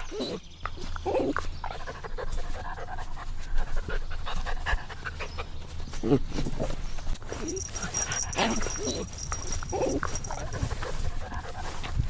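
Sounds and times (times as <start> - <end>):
puppies panting: 0.0 - 12.0
puppies whimpering: 6.0 - 11.3.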